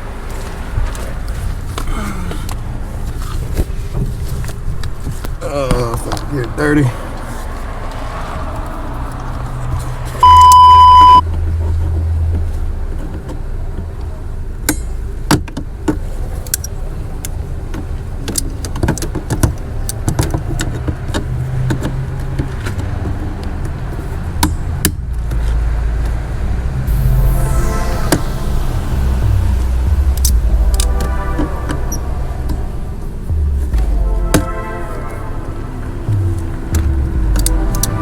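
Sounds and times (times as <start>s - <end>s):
loud electronic beep: 10.2s - 11.2s, 26.8s - 35.4s
low hum: 25.0s - 38.0s.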